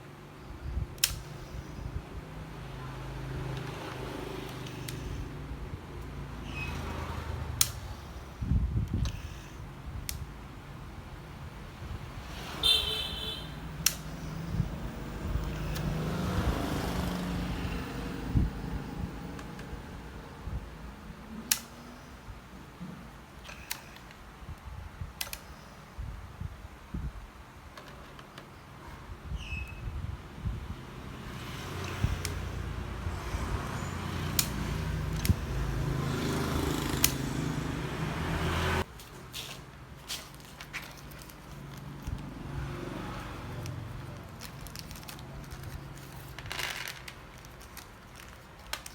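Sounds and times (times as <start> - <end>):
sharp clicks: 1.0 - 1.8, 3.4 - 5.3, 13.2 - 14.6, 21.4 - 22.2, 25.2 - 25.8, 34.2 - 35.6, 36.7 - 37.3
road vehicle passing by: 1.9 - 8.4, 10.7 - 21.4, 30.4 - 48.4.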